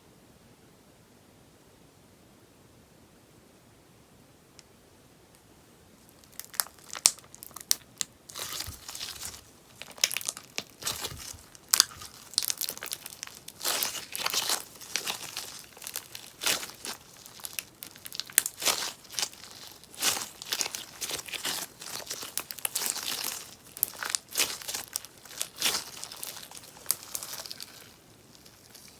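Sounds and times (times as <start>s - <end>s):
slime crackling and popping: 6.1s - 28.9s.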